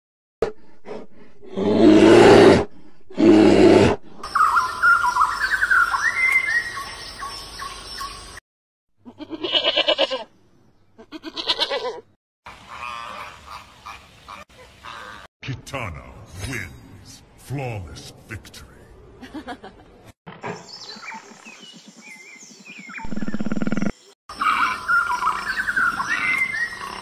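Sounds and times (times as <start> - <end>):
rapid pulsed animal calls: 20.9 - 27.0
deep animal calls: 23.0 - 24.8.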